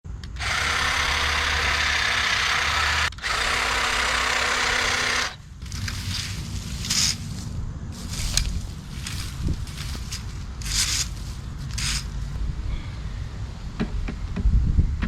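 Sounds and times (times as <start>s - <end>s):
leaf blower air rush: 0.3s - 12.4s.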